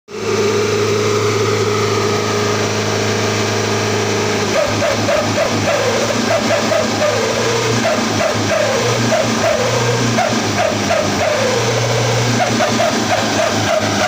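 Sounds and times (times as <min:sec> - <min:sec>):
truck engine droning: 0:00.1 - 0:14.0
exhaust yelping like a dog: 0:04.4 - 0:14.0.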